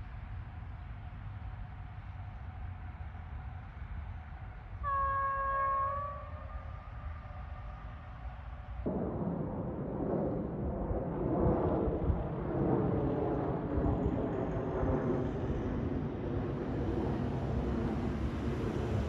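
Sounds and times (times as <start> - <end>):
electric train rumbling: 0.0 - 12.2, 13.0 - 19.0
wind buffeting microphone: 6.2 - 19.0.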